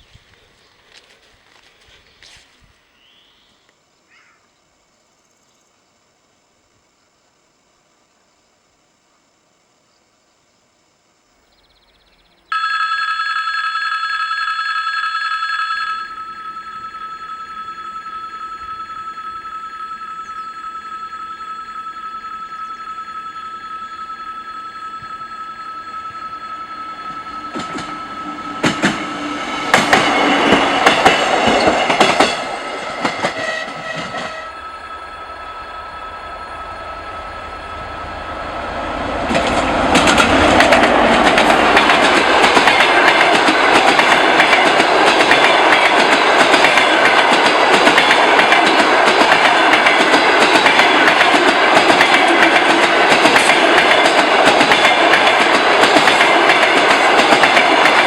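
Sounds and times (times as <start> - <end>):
steady tones: 12.5 - 58.0
train wheels rushing with clicking: 26.9 - 34.6, 38.2 - 58.0.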